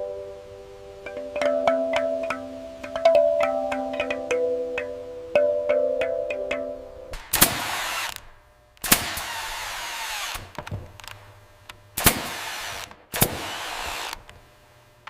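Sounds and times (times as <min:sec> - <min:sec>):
power drill running: 0:07.5 - 0:08.2, 0:09.0 - 0:10.6, 0:12.0 - 0:14.3.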